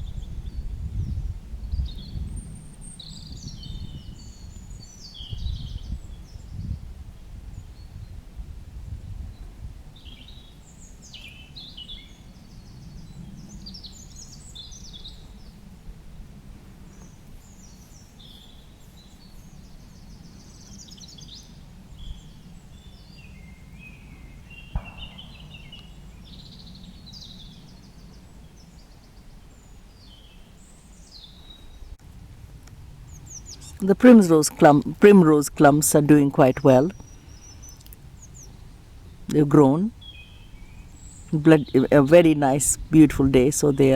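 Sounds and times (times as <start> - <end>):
songbirds singing: 0.0 - 8.2, 9.0 - 32.0, 32.6 - 43.9
sharp knock: 24.8 - 25.9.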